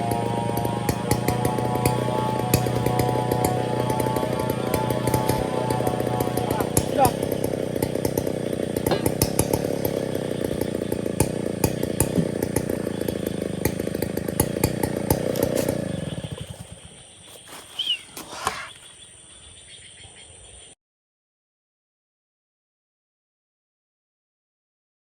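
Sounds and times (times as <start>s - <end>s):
chainsaw running at high speed: 0.0s - 18.9s.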